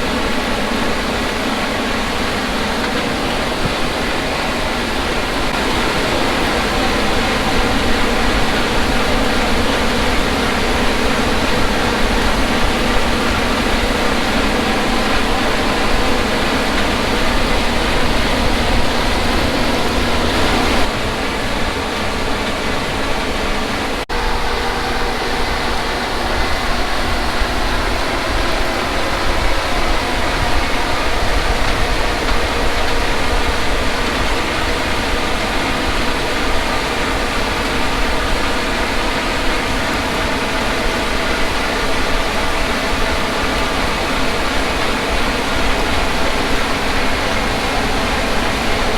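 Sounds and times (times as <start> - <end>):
combine harvester running: 0.0 - 48.9.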